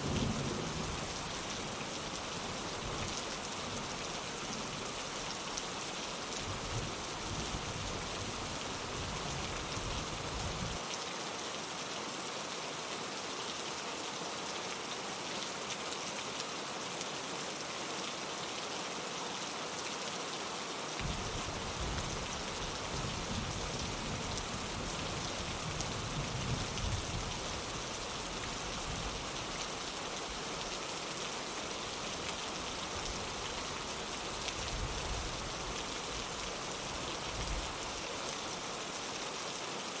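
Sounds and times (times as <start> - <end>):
rain on a window: 0.0 - 40.0.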